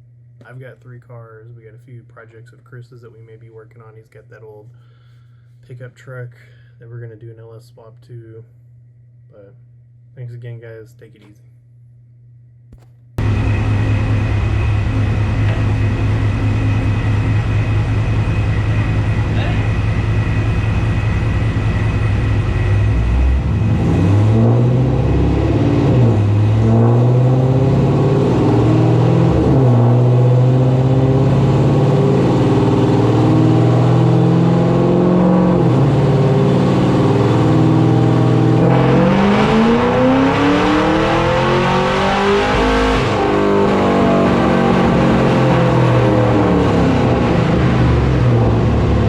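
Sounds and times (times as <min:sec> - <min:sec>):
car engine accelerating hard: 0:13.2 - 0:49.0.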